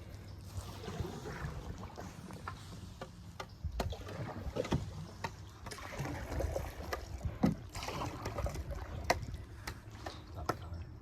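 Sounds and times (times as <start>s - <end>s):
paddle swishing water: 0.0s - 10.9s.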